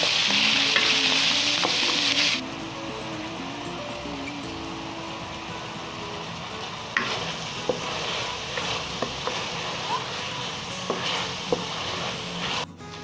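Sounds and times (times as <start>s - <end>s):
meat sizzling in oil: 0.0s - 2.4s, 5.1s - 12.7s
spatula scraping and knocking pot: 6.9s - 12.7s.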